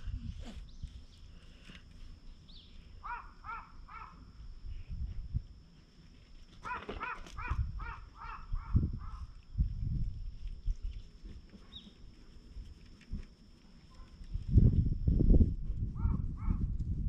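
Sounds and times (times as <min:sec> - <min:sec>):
bird cawing: 0:03.0 - 0:04.2, 0:06.6 - 0:09.2.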